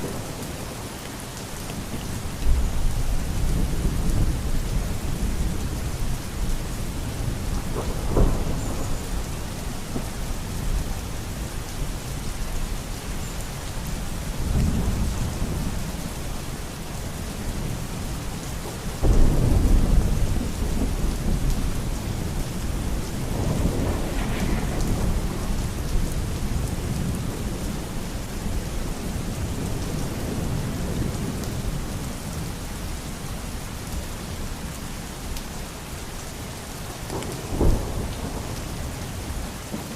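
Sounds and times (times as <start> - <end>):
heavy rain: 0.0 - 39.9
thunder rolling: 7.2 - 10.1, 19.0 - 27.6.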